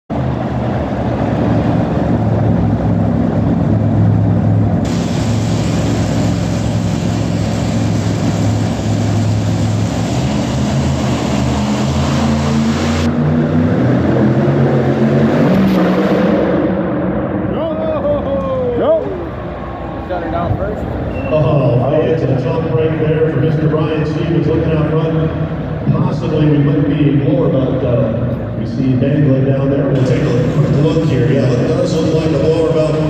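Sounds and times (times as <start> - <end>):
tractor engine running under load: 0.1 - 12.6.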